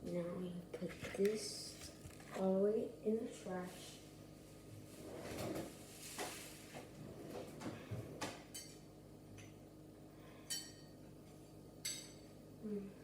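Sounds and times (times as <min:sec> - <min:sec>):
dishes clinking: 0:08.4 - 0:08.8, 0:10.5 - 0:11.0, 0:11.8 - 0:12.3.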